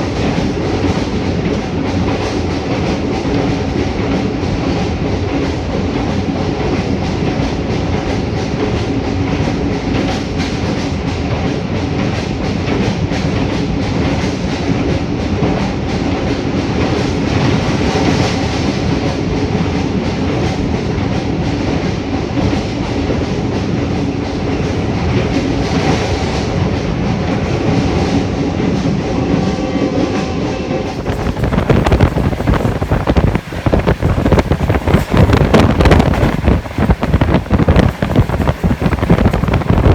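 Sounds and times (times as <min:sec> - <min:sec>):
train coaches rumbling: 0:00.0 - 0:39.9
wind buffeting microphone: 0:30.8 - 0:39.9
wheels clattering over rail joints: 0:30.9 - 0:39.9.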